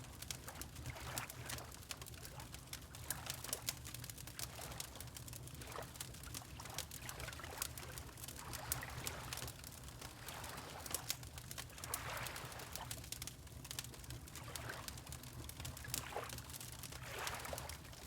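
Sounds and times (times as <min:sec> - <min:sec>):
water lapping: 0:17.0 - 0:18.0.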